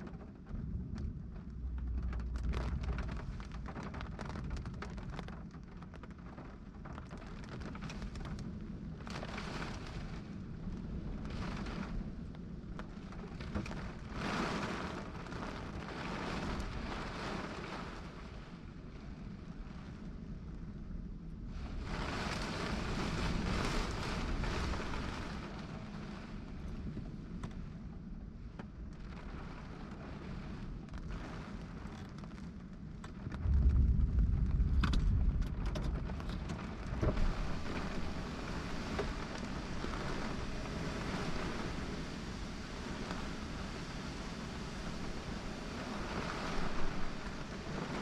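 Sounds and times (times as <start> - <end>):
low thunder rumble: 0.0 - 6.2, 32.8 - 48.0
steady rain: 0.0 - 48.0
wind buffeting microphone: 0.0 - 48.0.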